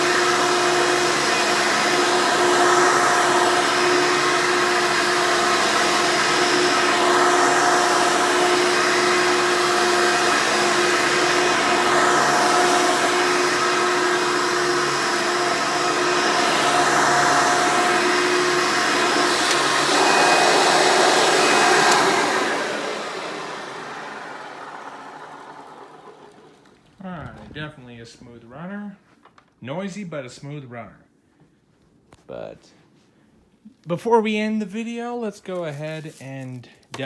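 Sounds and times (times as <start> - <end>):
vacuum cleaner running: 0.0 - 27.6
vacuum motor winding down: 0.0 - 27.6.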